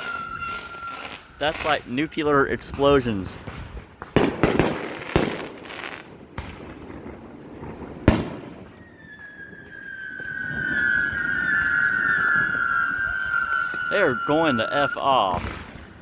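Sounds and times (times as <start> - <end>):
long falling firework whistle: 0.0 - 2.4, 8.0 - 16.0
firework bangs: 0.0 - 16.0.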